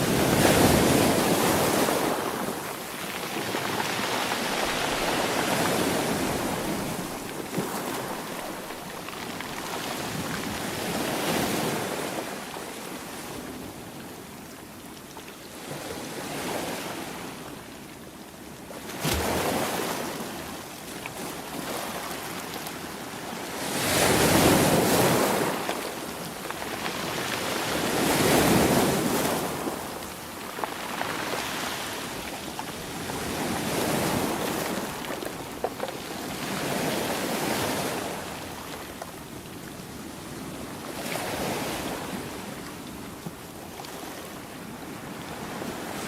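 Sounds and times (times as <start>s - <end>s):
sea waves breaking: 0.0s - 12.4s.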